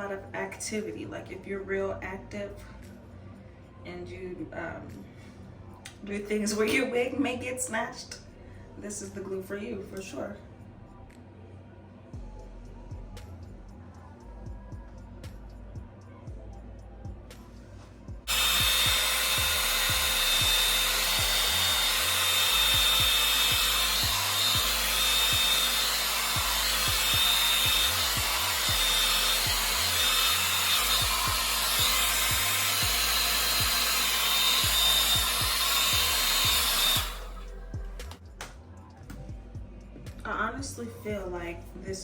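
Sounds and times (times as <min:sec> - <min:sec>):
hair dryer blowing: 0:18.2 - 0:38.2.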